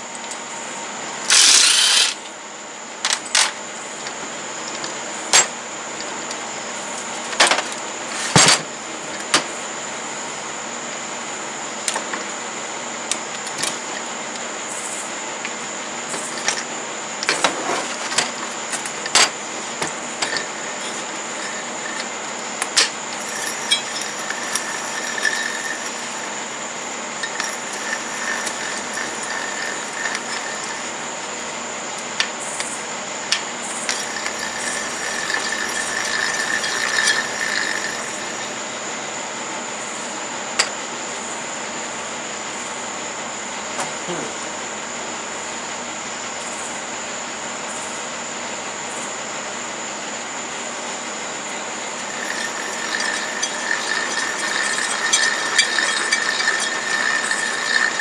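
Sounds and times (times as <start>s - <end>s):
hand tools clicking on metal: 27.2s - 30.9s, 33.9s - 38.4s, 52.0s - 58.0s.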